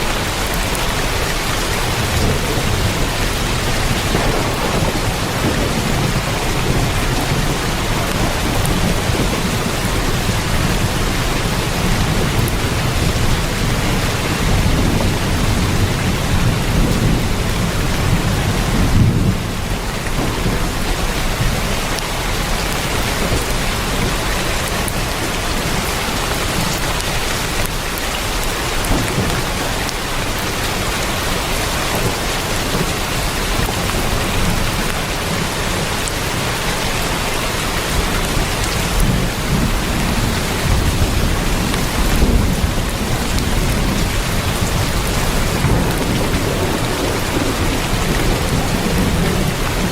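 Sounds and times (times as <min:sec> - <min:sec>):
heavy rain on a tin roof: 0:00.0 - 0:49.9
thunder rumbling: 0:00.0 - 0:49.9.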